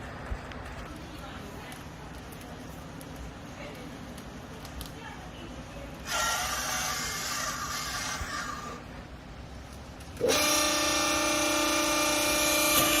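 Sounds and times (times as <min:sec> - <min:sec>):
hydraulic press pump whine: 0:10.2 - 0:13.0.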